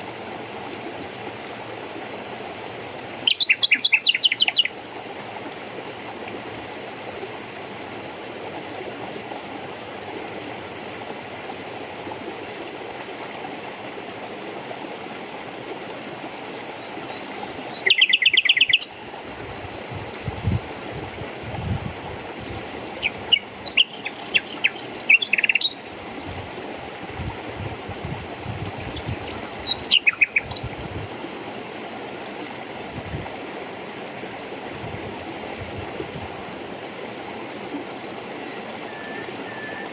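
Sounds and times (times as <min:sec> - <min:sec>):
flowing water: 0:00.0 - 0:39.9
small birds chirping: 0:01.2 - 0:04.7, 0:16.4 - 0:19.0, 0:22.8 - 0:25.8, 0:28.4 - 0:30.7.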